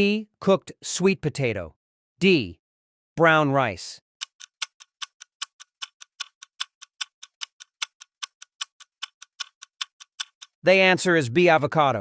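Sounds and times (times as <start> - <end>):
clock ticking: 4.2 - 10.6.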